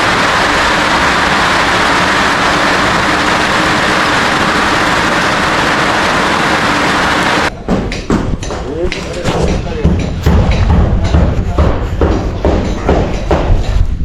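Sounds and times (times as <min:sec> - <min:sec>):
heavy rain on a roof: 0:00.0 - 0:07.5.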